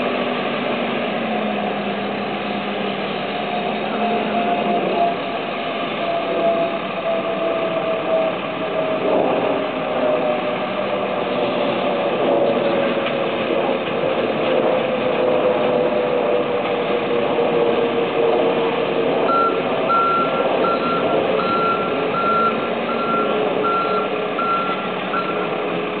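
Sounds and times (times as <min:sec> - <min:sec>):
diesel construction machinery running: 0:00.0 - 0:26.0
reversing alarm beeping: 0:19.3 - 0:25.6.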